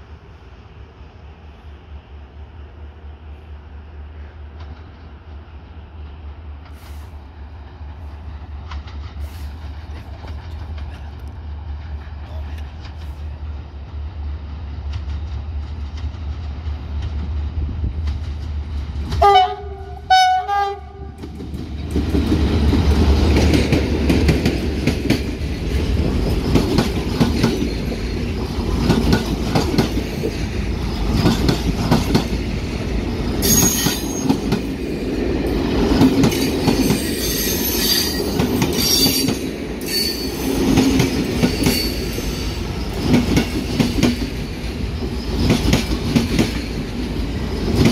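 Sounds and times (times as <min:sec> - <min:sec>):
diesel locomotive engine droning: 0:00.0 - 0:47.9
train horn blasts: 0:19.2 - 0:21.2
high wheel squeals: 0:33.4 - 0:34.4, 0:36.8 - 0:40.6.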